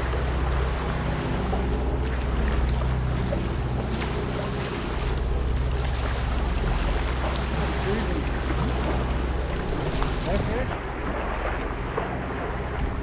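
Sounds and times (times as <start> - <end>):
boat engine hum: 0.0 - 13.0
water rushing past hull: 0.0 - 13.0.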